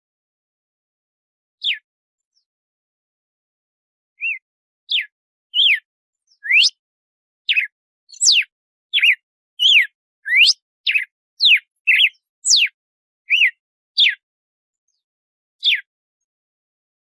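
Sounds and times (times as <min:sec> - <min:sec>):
bird whistling song: 0:01.6 - 0:02.5, 0:04.2 - 0:06.8, 0:07.4 - 0:14.2, 0:15.6 - 0:15.9.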